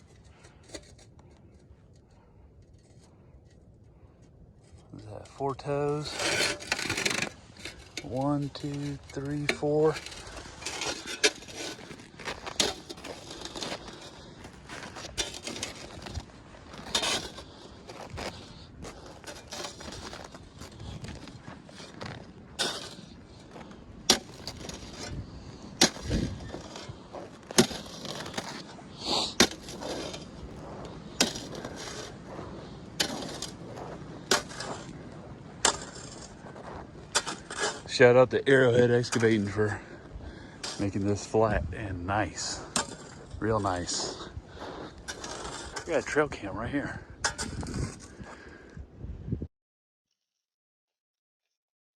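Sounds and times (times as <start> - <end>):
footsteps crunching through snow: 5.9 - 46.3.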